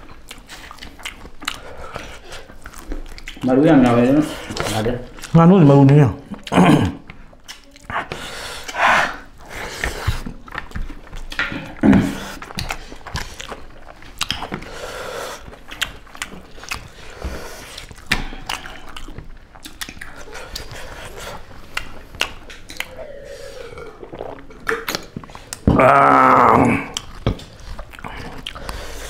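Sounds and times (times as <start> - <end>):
wet chewing and smacking: 0.0 - 29.0
vocal grunt: 6.5 - 7.0, 11.8 - 12.3, 22.8 - 24.6, 25.6 - 27.0.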